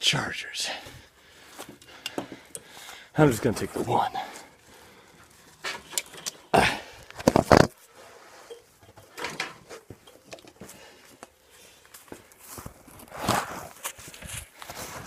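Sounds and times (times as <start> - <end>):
objects knocking and rustling: 5.3 - 11.4.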